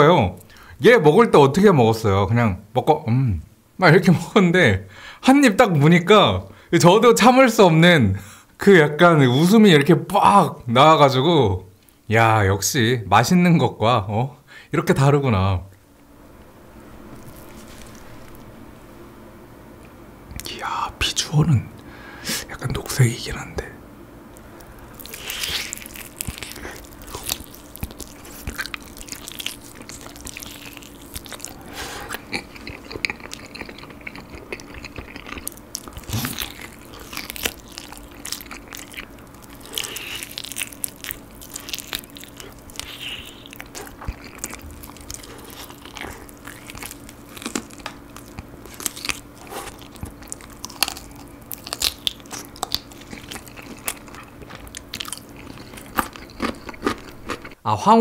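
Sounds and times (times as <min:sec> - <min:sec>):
biting and chewing chicken: 0:24.4 - 0:57.6.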